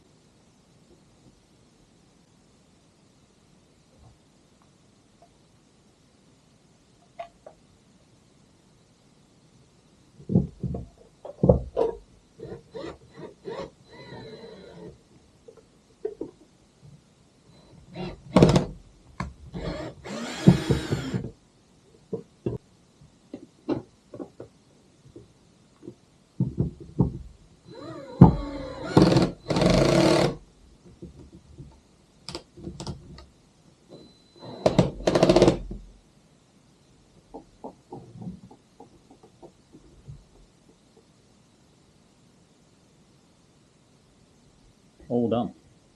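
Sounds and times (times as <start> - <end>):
noisy bursts: 0.0 - 30.8, 31.6 - 45.9
knocks and clunks: 10.2 - 12.1, 23.3 - 27.4.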